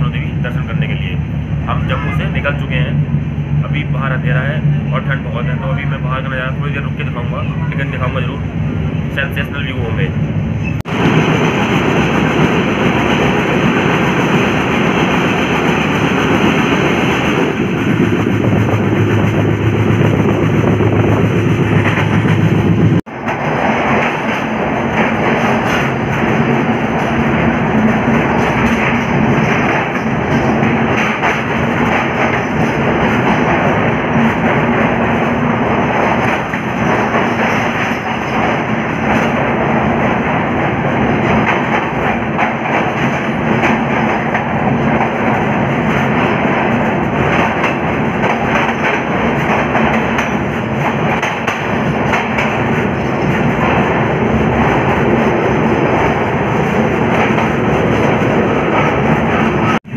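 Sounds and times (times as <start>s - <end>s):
train wheels rushing on rails: 0.0s - 59.9s.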